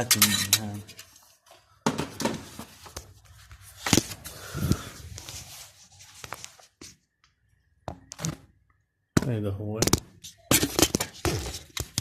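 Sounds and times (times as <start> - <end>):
hand tools and metal parts clicking: 0.0 - 1.2.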